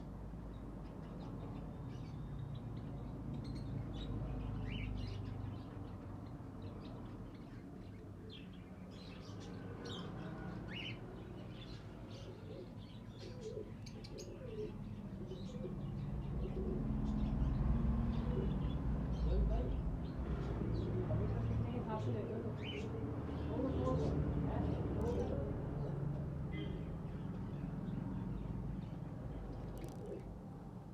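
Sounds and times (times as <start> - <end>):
small birds chirping: 0.0 - 30.9
pigeons cooing: 12.1 - 17.5, 18.1 - 18.8.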